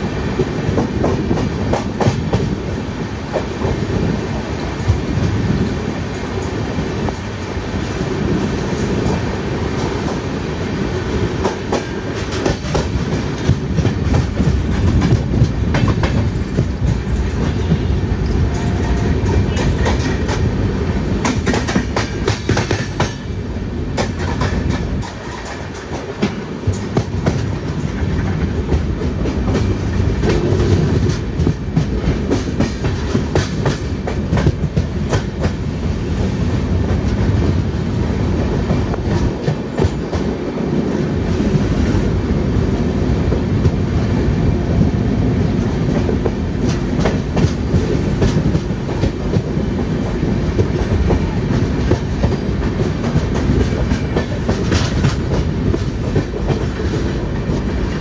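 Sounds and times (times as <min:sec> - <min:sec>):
train rumbling: 0:00.0 - 0:58.0
wheels clacking over rail joints: 0:11.4 - 0:35.6, 0:45.9 - 0:58.0.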